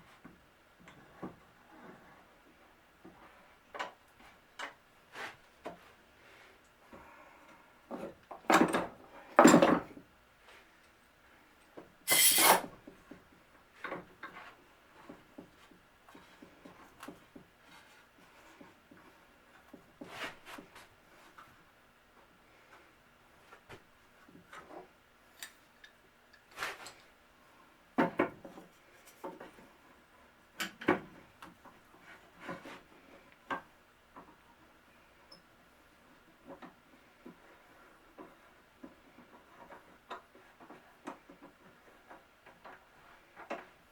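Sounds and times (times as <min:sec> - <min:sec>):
rasping scrape of wood: 0:12.1 - 0:12.7.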